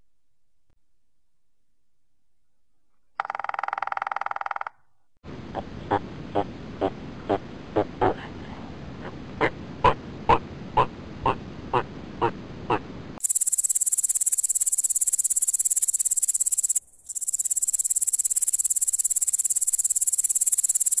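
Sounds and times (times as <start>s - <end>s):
insect trilling: 13.2s - 21.0s.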